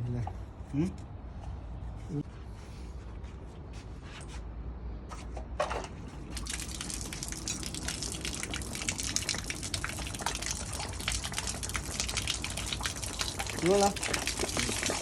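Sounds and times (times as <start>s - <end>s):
water gushing and splashing: 6.4s - 15.0s.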